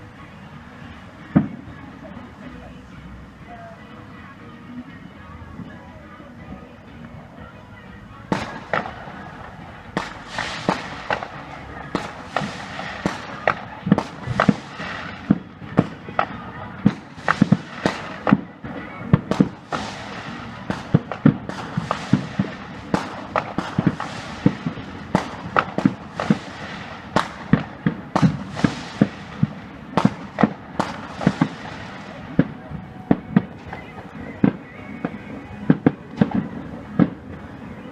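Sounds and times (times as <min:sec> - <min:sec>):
fireworks bangs: 0:00.0 - 0:02.5, 0:08.2 - 0:37.9
fireworks crackling: 0:00.0 - 0:37.9.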